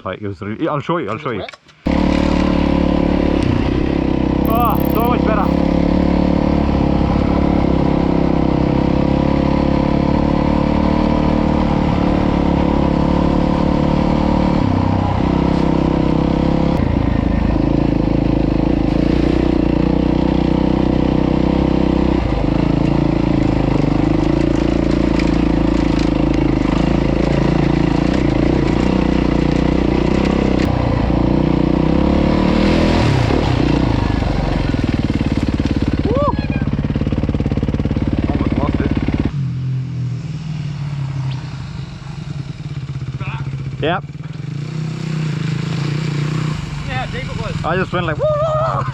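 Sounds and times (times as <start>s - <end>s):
dirt bike engine revving: 4.4s - 6.2s.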